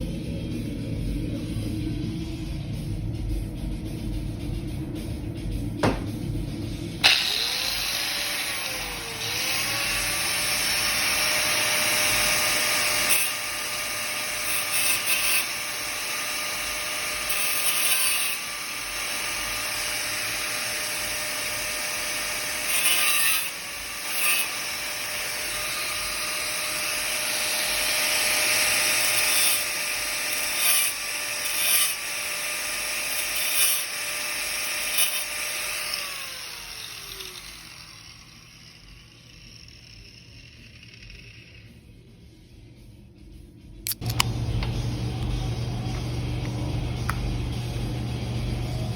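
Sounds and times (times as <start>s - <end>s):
power drill motor whine: 7.0s - 14.5s, 23.4s - 41.8s.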